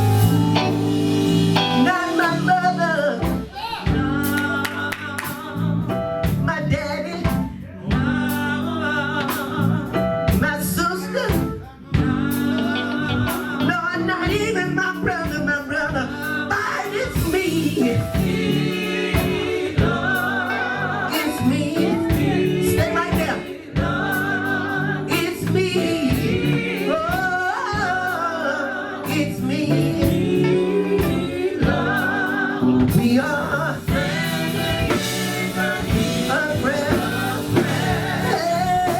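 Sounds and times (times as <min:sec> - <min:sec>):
band playing sustained chords: 0:00.0 - 0:03.4, 0:12.0 - 0:14.9, 0:29.4 - 0:38.9
gospel group singing: 0:00.0 - 0:38.9
drum hits: 0:32.9 - 0:38.9.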